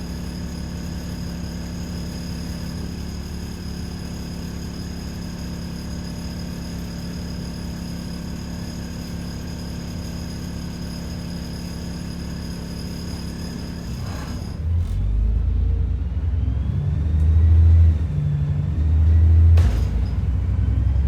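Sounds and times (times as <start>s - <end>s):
bus engine hum: 13.9s - 21.0s.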